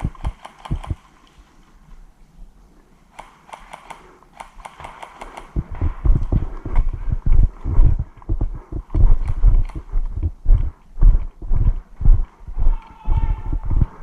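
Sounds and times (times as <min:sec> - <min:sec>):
footsteps: 0:04.8 - 0:14.0
running footsteps thudding: 0:05.6 - 0:12.3.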